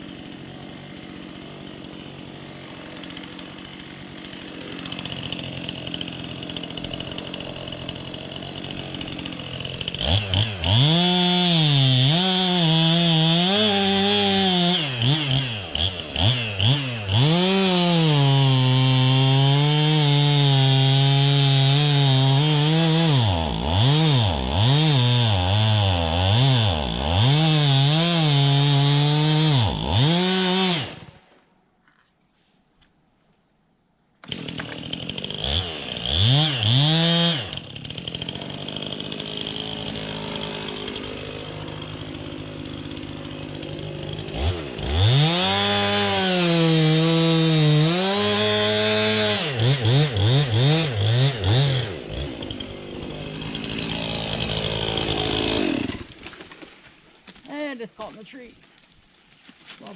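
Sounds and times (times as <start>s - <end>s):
chainsaw cutting into tree: 0.0s - 31.4s, 34.2s - 59.9s.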